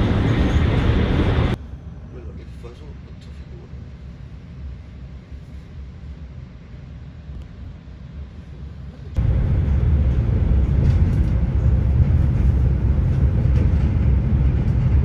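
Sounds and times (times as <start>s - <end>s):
train running hiss: 0.0s - 5.7s, 8.5s - 15.0s
train rumbling: 0.0s - 6.6s, 7.6s - 15.0s.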